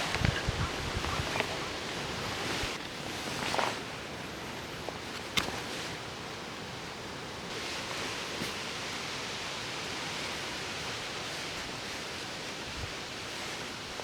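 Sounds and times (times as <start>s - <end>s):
steady rushing outdoor noise: 0.0s - 4.9s.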